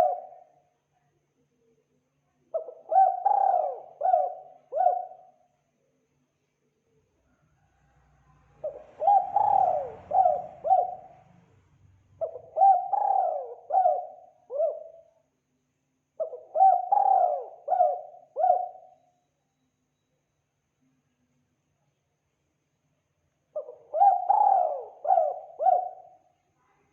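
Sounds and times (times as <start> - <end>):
dove cooing: 0.0 - 0.5, 2.6 - 5.4, 8.6 - 11.3, 12.2 - 15.1, 16.2 - 19.0, 23.6 - 26.2.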